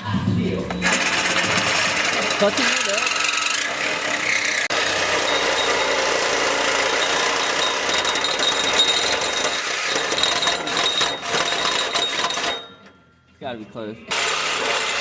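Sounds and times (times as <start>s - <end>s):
reciprocating saw cutting metal pipe: 0.7s - 12.8s, 14.1s - 15.0s.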